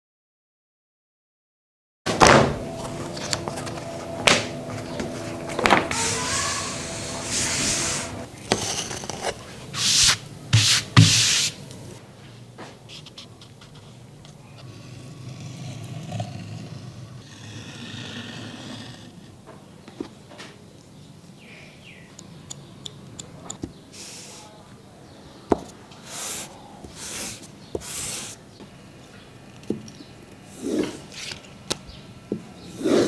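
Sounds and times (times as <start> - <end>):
rubbing and scraping leather: 2.6 - 12.0.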